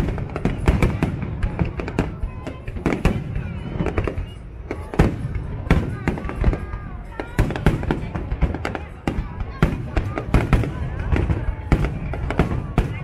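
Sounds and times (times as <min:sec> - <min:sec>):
fireworks booming and crackling: 0:00.0 - 0:13.0
faint firework whistles: 0:01.7 - 0:06.6.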